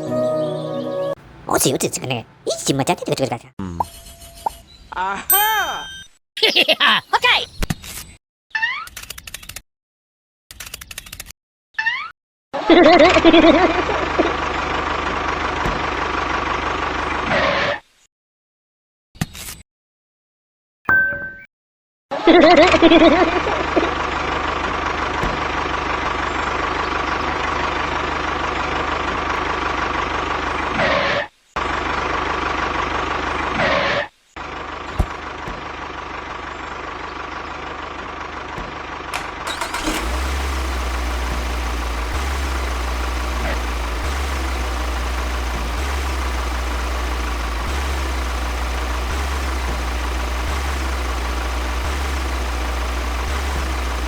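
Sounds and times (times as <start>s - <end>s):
small motor running: 39.5s - 54.0s
deep low hum: 40.7s - 54.0s.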